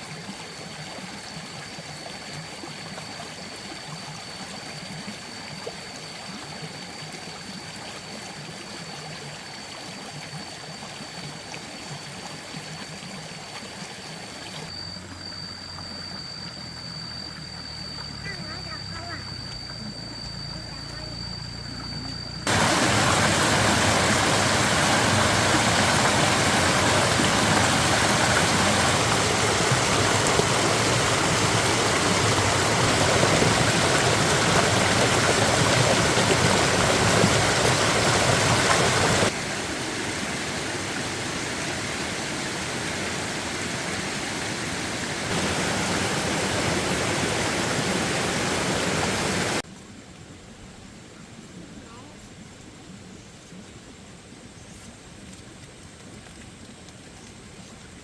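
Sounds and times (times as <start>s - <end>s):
water rushing: 17.3s - 49.6s.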